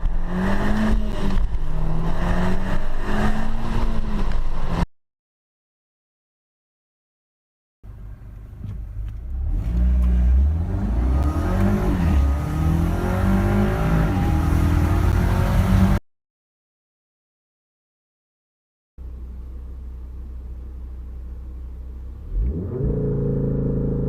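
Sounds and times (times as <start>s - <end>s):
car engine accelerating: 0.0s - 4.9s, 7.9s - 16.0s, 20.5s - 24.0s.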